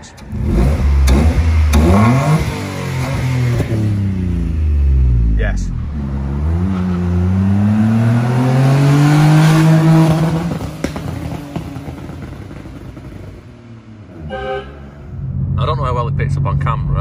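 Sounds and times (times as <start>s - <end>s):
car accelerating past: 5.8s - 15.6s.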